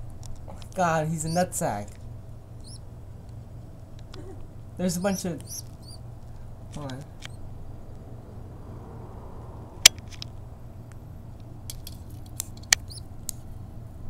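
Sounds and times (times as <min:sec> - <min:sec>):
low steady hum: 0:00.0 - 0:14.0
faint high peeps: 0:02.6 - 0:02.8, 0:04.2 - 0:06.0
sharp clicks: 0:05.1 - 0:08.0, 0:11.4 - 0:13.4.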